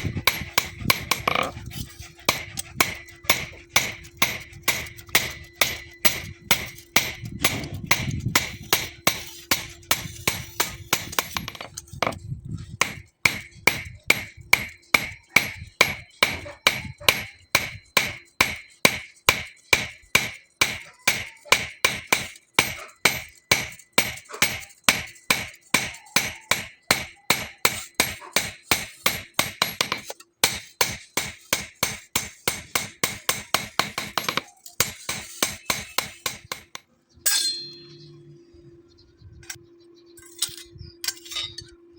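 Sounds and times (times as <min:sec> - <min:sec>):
hammer ringing on steel: 0:02.3 - 0:12.2, 0:12.8 - 0:38.1.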